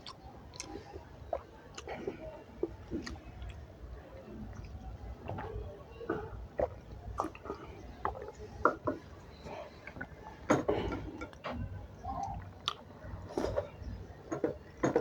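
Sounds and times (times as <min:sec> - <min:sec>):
mouth smacks and clicks: 0:00.0 - 0:02.0, 0:12.2 - 0:12.9
person chewing food: 0:00.0 - 0:03.7, 0:06.1 - 0:11.6, 0:12.2 - 0:13.7.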